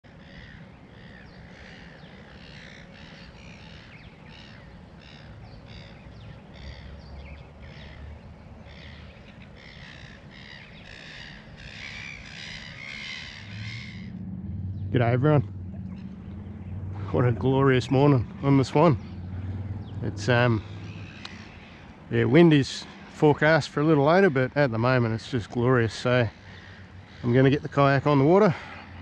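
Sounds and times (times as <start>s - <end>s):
birds cawing harshly: 0.0s - 29.0s.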